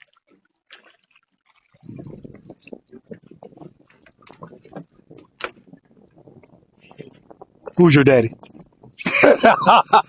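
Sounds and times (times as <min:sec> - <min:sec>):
water splashing and dripping: 0:00.0 - 0:09.0
irregular knocks and rustling: 0:02.1 - 0:09.1.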